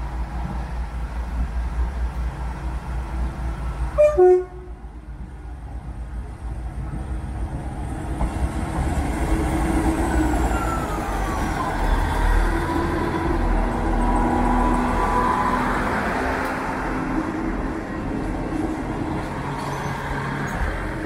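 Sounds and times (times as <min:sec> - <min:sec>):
diesel train engine and wheels: 0:00.0 - 0:21.0
train horn blast: 0:04.0 - 0:04.8.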